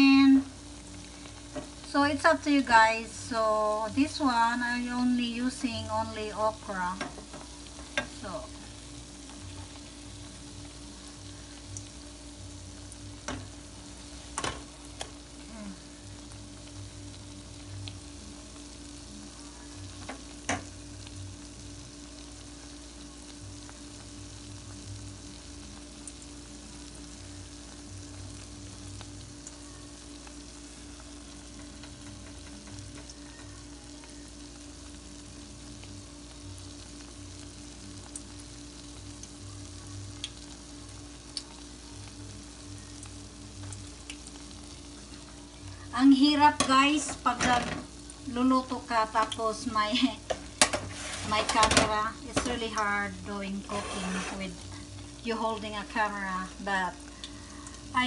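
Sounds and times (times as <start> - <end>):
patties sizzling in oil: 0.0 - 58.0.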